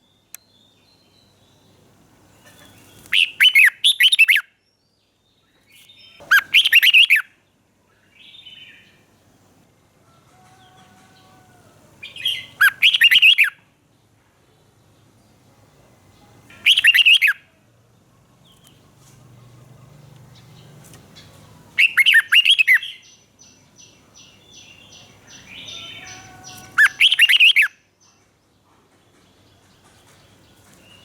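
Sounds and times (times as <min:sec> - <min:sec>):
bird singing whistled phrases: 0:03.1 - 0:04.5, 0:06.3 - 0:07.3, 0:12.2 - 0:13.6, 0:16.6 - 0:17.4, 0:21.8 - 0:23.1, 0:25.6 - 0:27.8.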